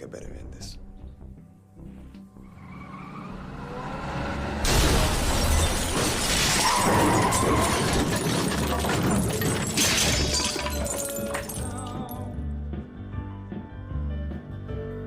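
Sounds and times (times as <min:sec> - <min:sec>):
debris breaking and crashing: 0:04.7 - 0:12.2
glass shattering: 0:04.7 - 0:12.2.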